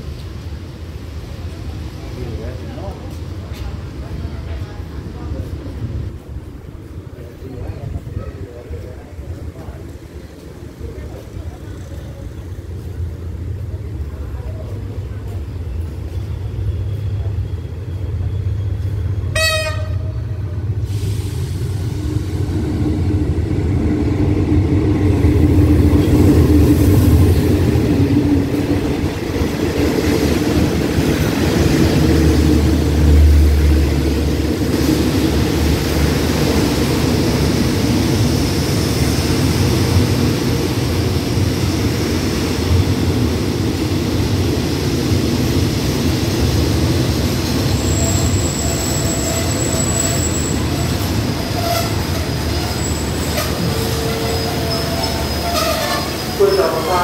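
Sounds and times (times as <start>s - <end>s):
train horn toot: 19.3s - 20.2s
train wheels rolling over rails: 20.6s - 57.0s.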